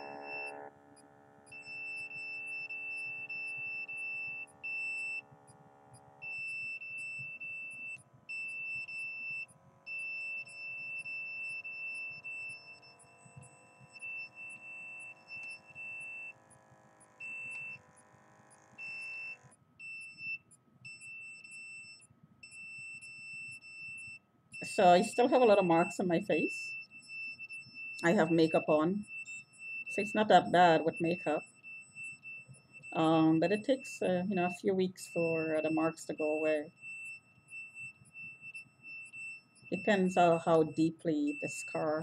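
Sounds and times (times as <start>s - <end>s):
soft drifting drone: 0.0s - 19.5s
blood pressure monitor pump humming: 0.0s - 21.8s
high electronic tone beeping: 0.0s - 27.0s, 27.6s - 42.0s.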